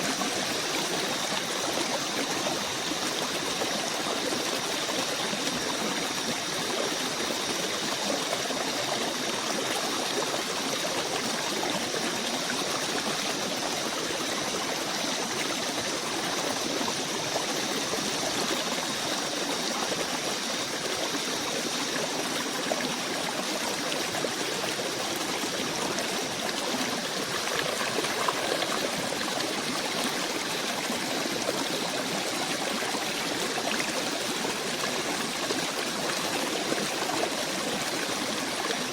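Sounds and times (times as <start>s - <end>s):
stream rushing: 27.2s - 31.5s.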